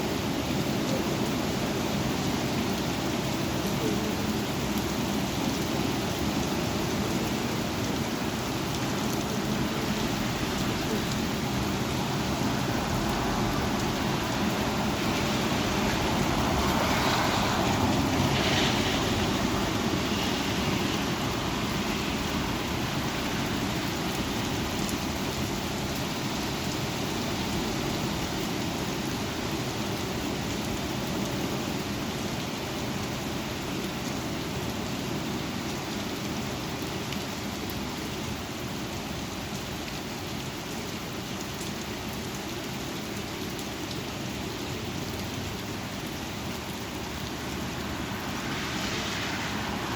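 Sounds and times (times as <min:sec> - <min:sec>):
strong wind: 0:00.0 - 0:31.8, 0:45.8 - 0:49.9
rain: 0:00.0 - 0:49.9.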